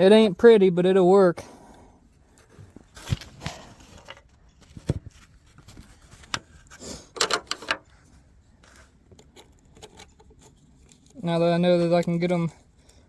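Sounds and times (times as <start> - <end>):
hand tools clicking and knocking: 7.1 - 7.9.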